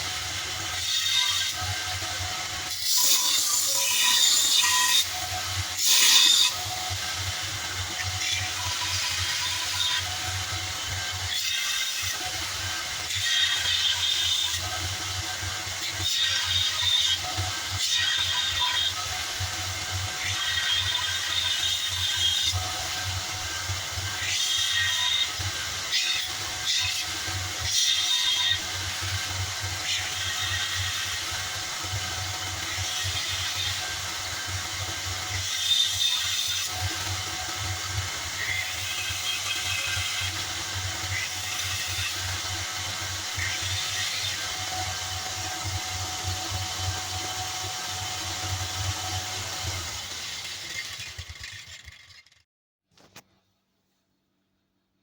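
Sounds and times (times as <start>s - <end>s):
belt sander running: 28.7s - 52.4s
belt sander humming: 44.7s - 52.4s.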